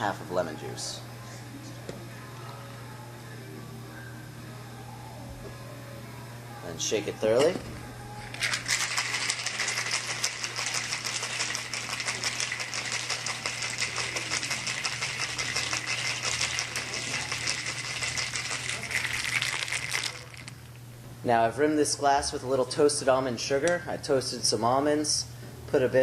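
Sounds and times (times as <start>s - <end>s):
ice rattling in cocktail shaker: 8.3s - 20.6s.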